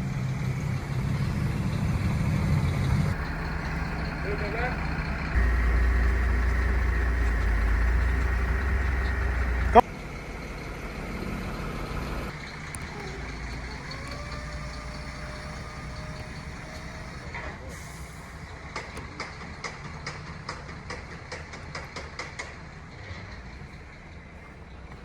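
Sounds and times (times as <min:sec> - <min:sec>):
truck engine idling: 0:00.0 - 0:25.0
sharp ticking clicks: 0:02.4 - 0:09.8.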